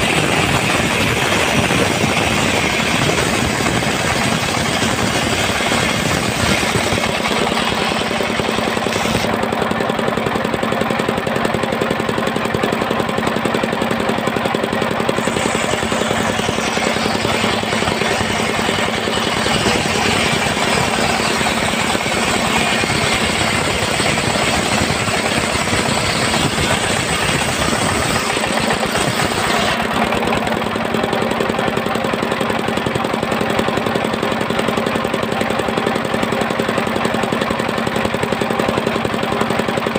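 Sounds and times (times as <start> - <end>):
bright hissing saw noise: 0.0 - 9.4, 15.1 - 29.8
sawmill engine humming: 0.0 - 39.9.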